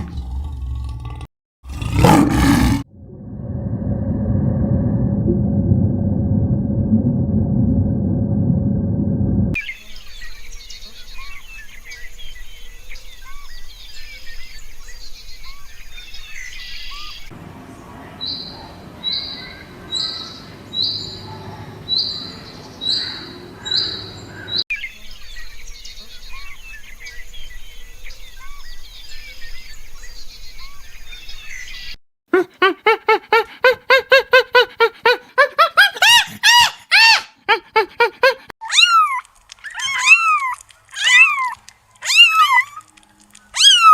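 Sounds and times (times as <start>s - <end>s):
chorus of bird chirps: 9.6s - 32.0s
high animal call: 38.0s - 42.9s, 43.5s - 43.9s.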